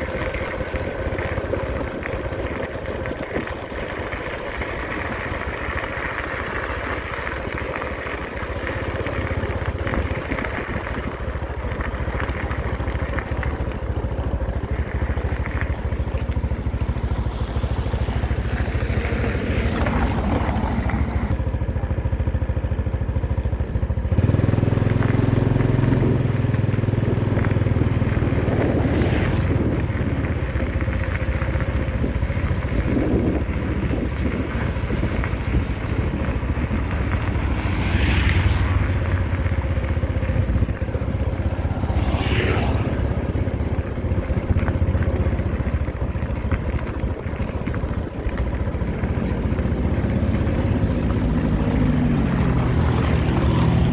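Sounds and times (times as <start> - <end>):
heavy machinery engines droning: 0.0 - 53.9.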